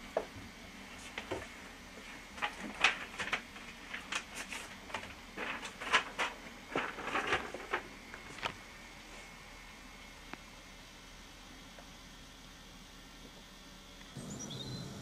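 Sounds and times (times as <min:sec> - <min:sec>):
paper rustling: 0:01.0 - 0:08.6.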